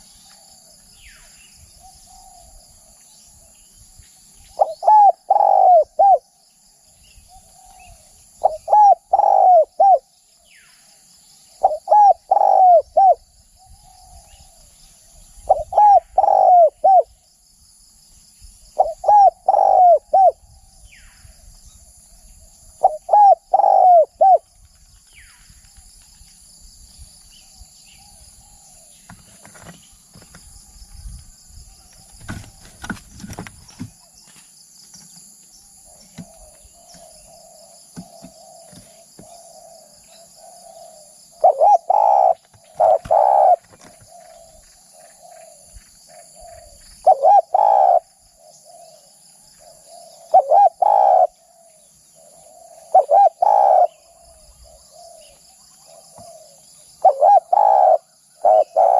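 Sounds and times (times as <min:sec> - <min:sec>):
dove cooing: 0:04.5 - 0:06.3, 0:07.3 - 0:10.1, 0:11.6 - 0:13.2, 0:15.4 - 0:17.1, 0:18.8 - 0:20.4, 0:22.8 - 0:24.4, 0:35.9 - 0:58.9.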